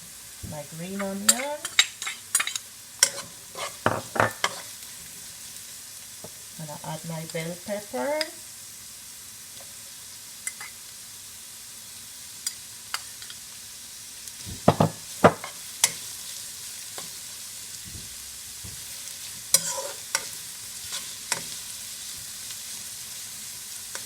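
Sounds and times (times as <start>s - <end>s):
vegetables sizzling in oil: 0.0s - 24.0s
utensil scraping a pan: 0.9s - 4.8s, 19.5s - 21.6s.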